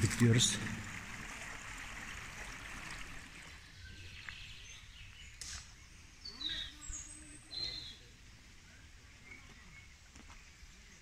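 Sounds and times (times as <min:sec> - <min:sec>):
stream running over stones: 0:00.0 - 0:04.9
bird chirps: 0:03.7 - 0:08.1, 0:08.7 - 0:10.4.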